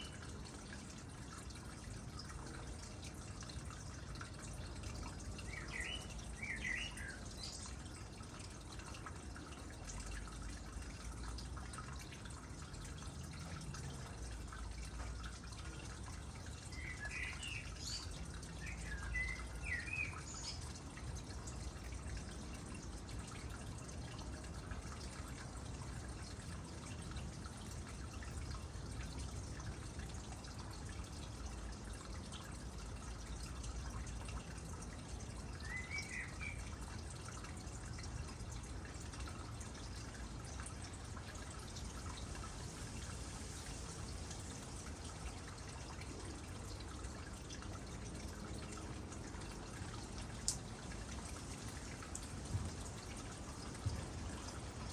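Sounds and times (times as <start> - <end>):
water trickling into pond: 0.0 - 54.9.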